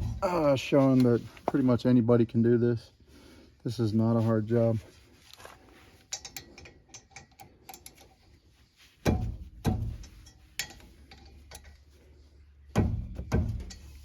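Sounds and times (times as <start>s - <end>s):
heavy knocks: 9.1s - 10.0s.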